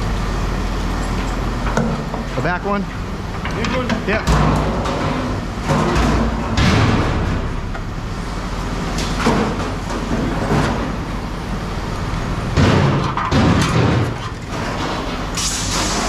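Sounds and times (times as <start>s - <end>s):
engine running: 0.0s - 16.0s
scrap metal clanking and banging: 3.4s - 16.0s.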